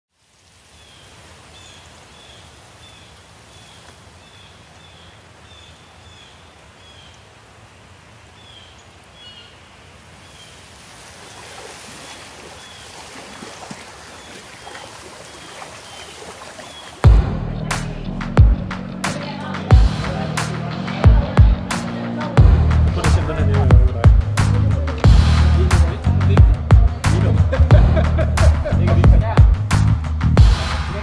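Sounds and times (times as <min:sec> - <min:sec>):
steady hiss of wind or water: 0:00.1 - 0:17.1
bird chirping: 0:08.4 - 0:10.6, 0:11.9 - 0:17.1.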